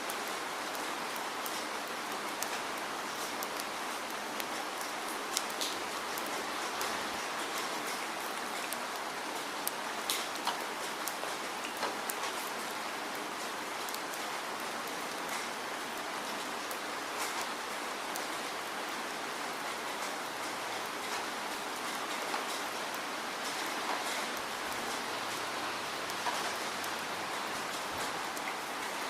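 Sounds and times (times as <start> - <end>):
steady rain hiss: 0.0 - 29.0.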